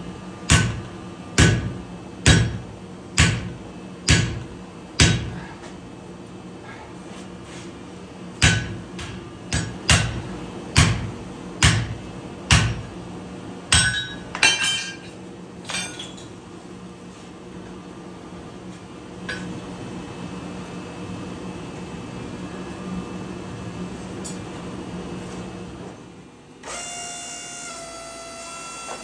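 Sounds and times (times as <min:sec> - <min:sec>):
hammer striking steel on anvil: 0:00.5 - 0:05.4, 0:08.4 - 0:13.0, 0:13.7 - 0:15.0.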